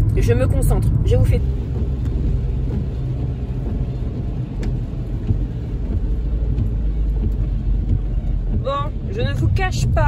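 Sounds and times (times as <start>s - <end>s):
car engine and tyres rumbling: 0.0s - 10.0s.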